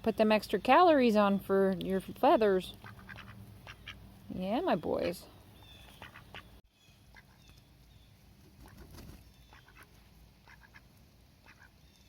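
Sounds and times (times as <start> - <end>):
ducks quacking softly: 2.8 - 7.5, 8.6 - 11.8.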